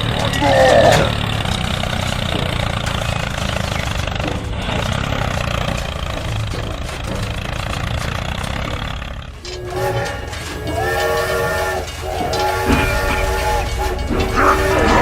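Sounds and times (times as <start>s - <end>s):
low engine rumble: 0.0s - 15.0s
train horn blasts: 9.4s - 15.0s.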